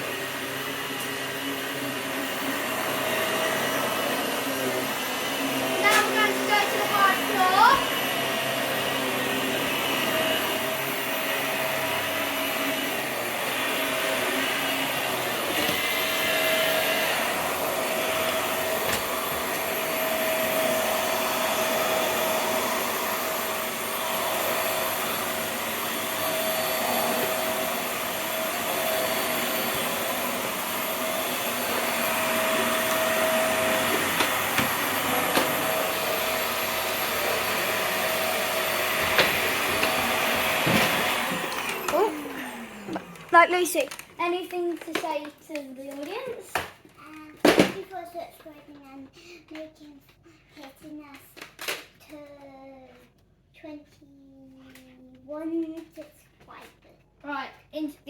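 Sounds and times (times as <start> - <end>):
vacuum cleaner running: 0.0 - 45.2.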